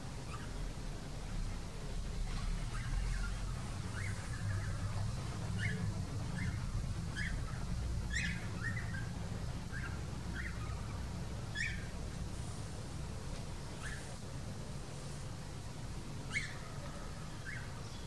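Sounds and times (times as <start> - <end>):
low steady rumble: 0.0 - 18.0
bird chirping: 2.7 - 11.9, 16.3 - 18.0.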